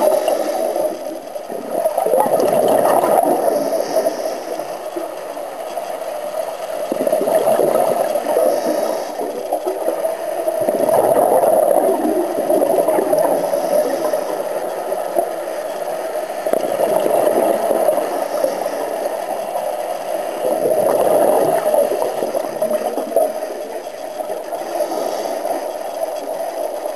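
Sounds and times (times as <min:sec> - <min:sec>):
regulator hiss on inhale: 0:00.0 - 0:02.0, 0:03.1 - 0:26.9
gurgling exhaled bubbles: 0:00.0 - 0:04.5, 0:06.9 - 0:15.3, 0:16.4 - 0:19.0, 0:20.4 - 0:25.6.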